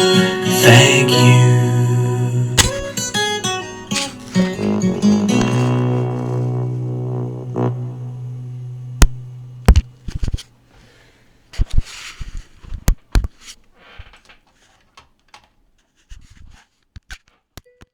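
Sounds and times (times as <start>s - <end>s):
held note of a song: 0.0s - 10.4s.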